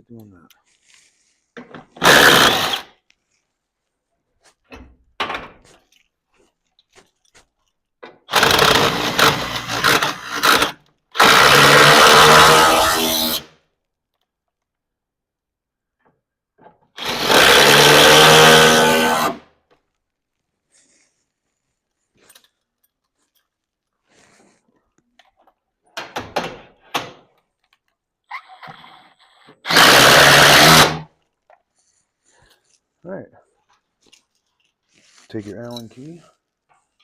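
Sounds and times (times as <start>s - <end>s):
handheld power tool running: 2.0s - 2.9s, 8.3s - 13.5s, 17.0s - 19.4s, 29.6s - 31.1s.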